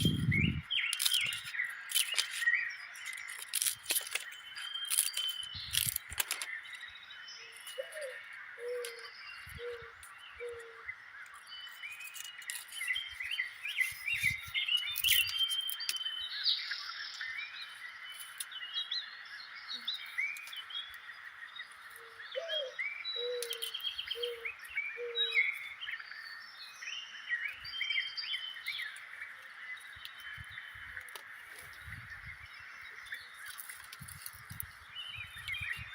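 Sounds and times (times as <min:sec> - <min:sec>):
small birds chirping: 0:00.0 - 0:35.9
low bird call: 0:22.0 - 0:25.7.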